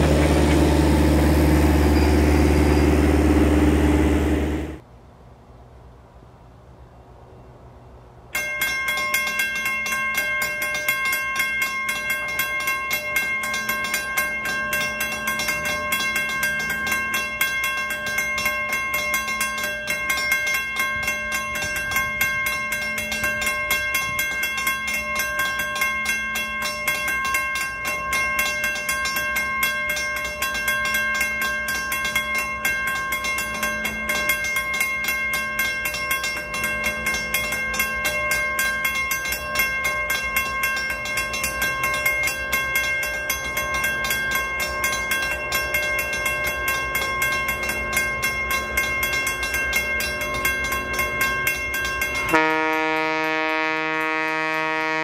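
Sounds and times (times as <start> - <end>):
steady high-pitched tone: 0.0 - 4.8
train rattling on track: 0.0 - 4.8, 8.4 - 55.0
brass music: 52.3 - 55.0.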